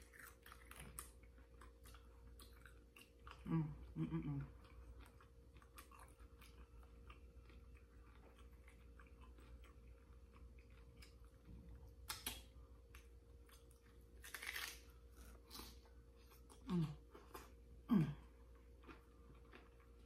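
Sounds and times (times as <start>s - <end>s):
chewing crunchy taco: 0.0s - 20.0s.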